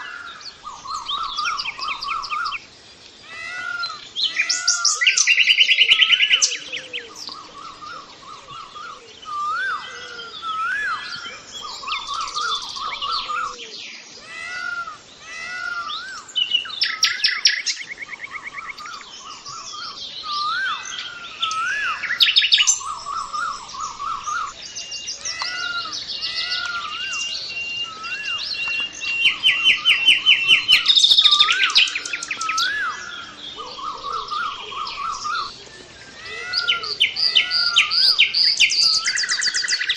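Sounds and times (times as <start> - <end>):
birds chirping and singing: 0.0 - 39.9
bird whistling rising and falling: 3.8 - 13.6, 25.3 - 35.5.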